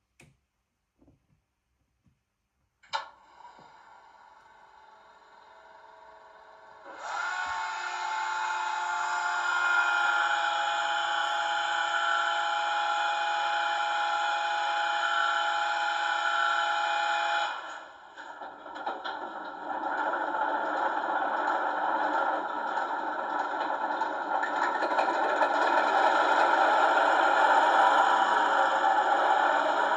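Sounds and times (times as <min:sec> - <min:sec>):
model diesel engine sound: 0:03.1 - 0:29.9
rough clattering sound: 0:18.2 - 0:27.4.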